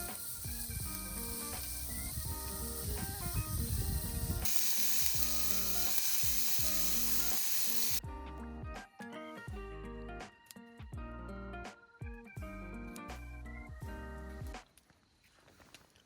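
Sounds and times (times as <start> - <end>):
food sizzling in a pan: 0.0 - 8.0
light background music: 0.0 - 14.8.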